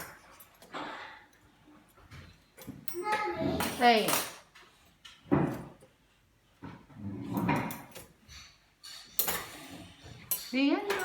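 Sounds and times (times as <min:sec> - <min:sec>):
knocks and rattles: 0:05.0 - 0:05.9.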